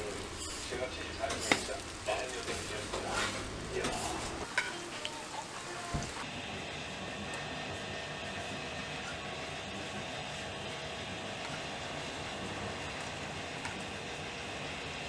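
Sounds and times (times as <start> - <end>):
food sizzling in oil: 0.0 - 6.8.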